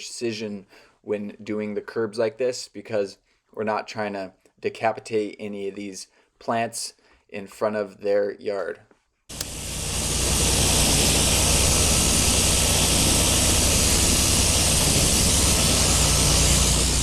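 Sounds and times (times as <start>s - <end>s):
engine and pump droning: 9.3s - 17.0s
pressure washer spray hissing: 9.3s - 17.0s.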